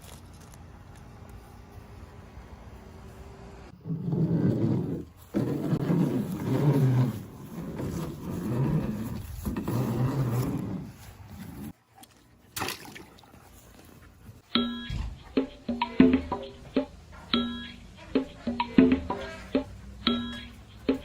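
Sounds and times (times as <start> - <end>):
music with woody percussion: 14.6 - 21.0.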